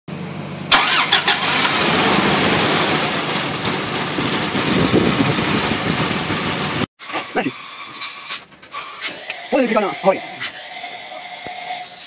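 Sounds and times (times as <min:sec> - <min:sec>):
car engine starting and running: 0:00.1 - 0:06.9.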